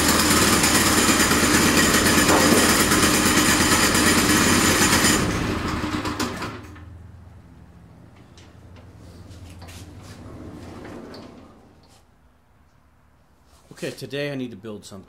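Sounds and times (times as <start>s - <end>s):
small gasoline engine running: 0.0s - 6.9s.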